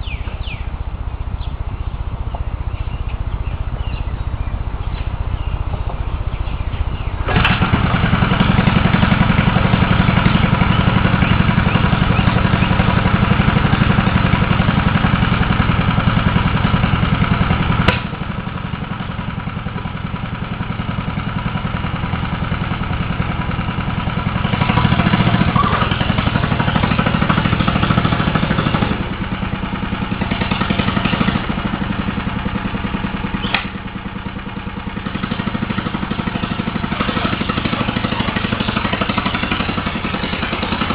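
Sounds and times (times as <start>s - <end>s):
tractor engine running hard: 0.0s - 40.9s
sharp click: 33.4s - 33.8s.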